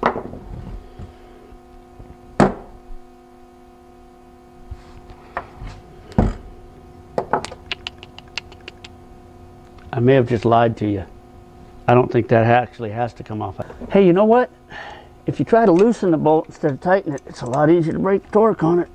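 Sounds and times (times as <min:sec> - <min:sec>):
faint steady hum: 0:00.0 - 0:18.9
metal tools knocking on engine parts: 0:15.7 - 0:18.0.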